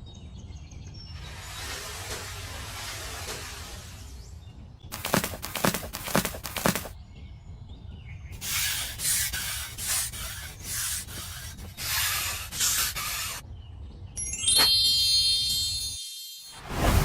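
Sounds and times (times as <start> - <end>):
rasping scraping strokes: 1.2 - 4.3, 8.4 - 13.4
chime-like musical flourish: 14.2 - 17.0.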